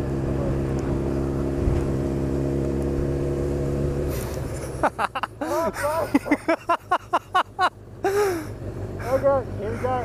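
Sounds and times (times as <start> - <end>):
motorcycle engine running at low revs: 0.0 - 4.9.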